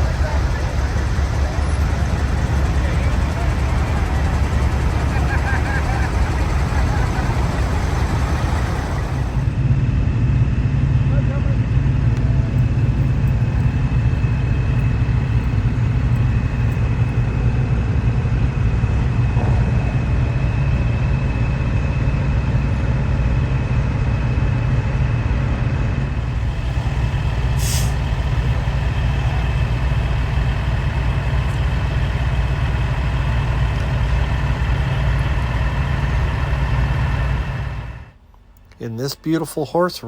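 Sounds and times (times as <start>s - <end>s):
diesel truck engines idling: 0.0s - 40.0s
air brake hiss: 27.5s - 28.1s.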